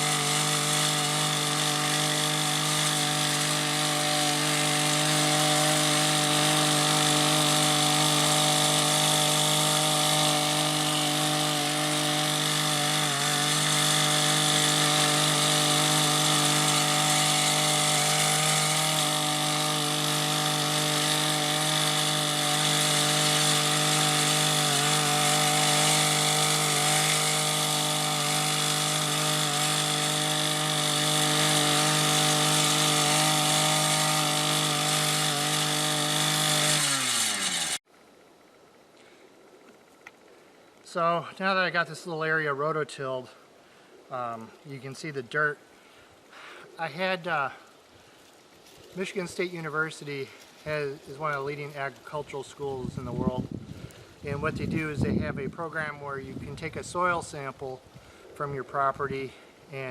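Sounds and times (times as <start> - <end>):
cultivator engine running: 0.0 - 37.8.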